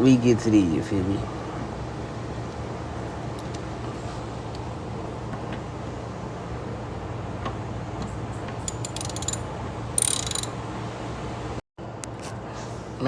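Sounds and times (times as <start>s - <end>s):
hand tool metallic clicks: 8.7s - 9.4s, 10.0s - 10.5s.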